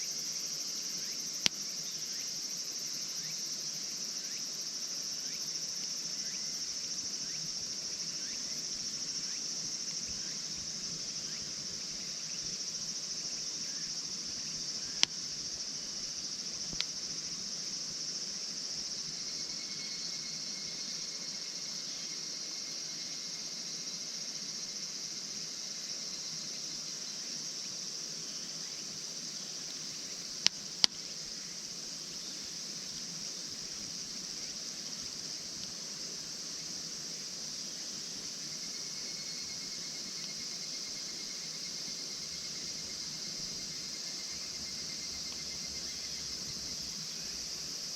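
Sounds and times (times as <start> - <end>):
insects singing: 25.8 - 47.9.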